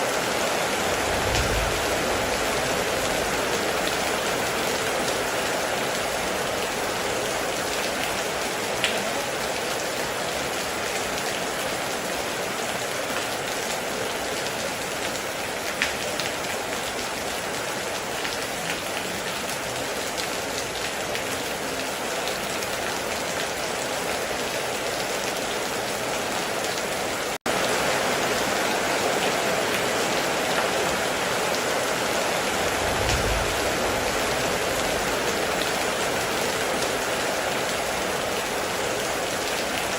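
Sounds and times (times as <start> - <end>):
heavy rain falling: 0.0 - 39.9
short low rumble: 32.7 - 34.3.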